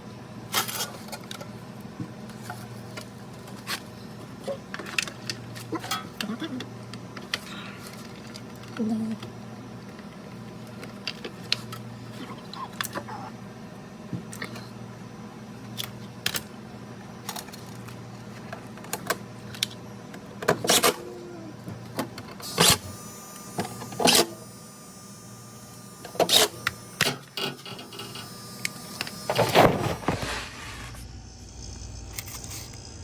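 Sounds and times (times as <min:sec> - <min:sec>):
steady low hum: 0:00.0 - 0:33.0
scraping rustling noises: 0:29.4 - 0:31.0.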